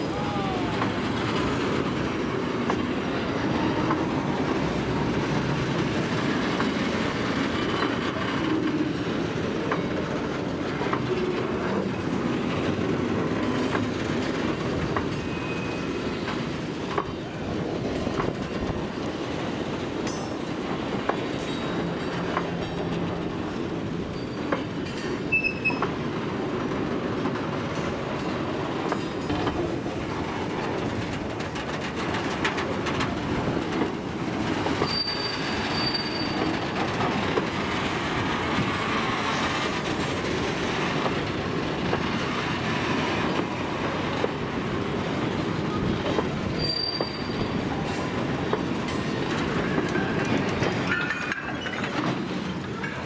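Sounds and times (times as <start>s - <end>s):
train wheels clattering on rails: 0.0s - 53.0s
high wheel squeals: 15.1s - 16.2s, 24.0s - 24.6s, 25.3s - 25.9s, 34.8s - 36.6s, 46.4s - 47.6s.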